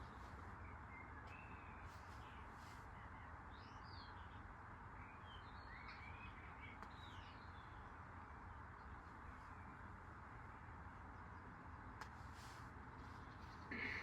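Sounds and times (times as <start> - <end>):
low hum and hiss: 0.0 - 14.0
faint bird chirps: 13.2 - 14.0.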